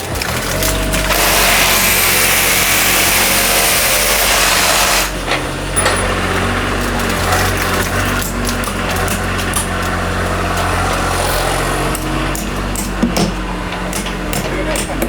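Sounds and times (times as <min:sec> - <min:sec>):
small engine running: 0:00.0 - 0:14.8
scattered knocks: 0:05.2 - 0:15.0.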